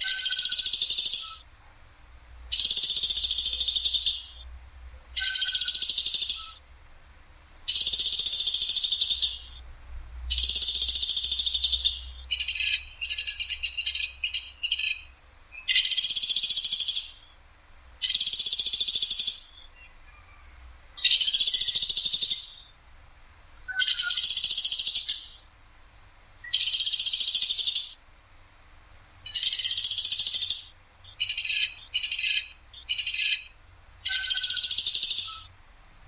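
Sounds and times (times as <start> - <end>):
woodpecker rattling call: 0.0 - 1.5, 2.5 - 4.5, 5.1 - 6.6, 7.7 - 9.6, 10.3 - 17.4, 18.0 - 19.8, 21.0 - 22.7, 23.6 - 25.5, 26.4 - 28.0, 29.2 - 35.5.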